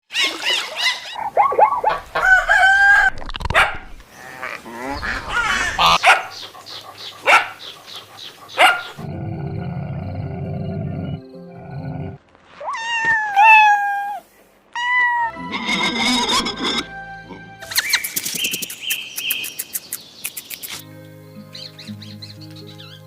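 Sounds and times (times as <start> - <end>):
rooster crowing: 2.1 - 3.2
dog barking: 3.5 - 3.9, 5.8 - 6.4, 7.2 - 7.7, 8.5 - 9.0
chickens clucking: 4.8 - 9.1.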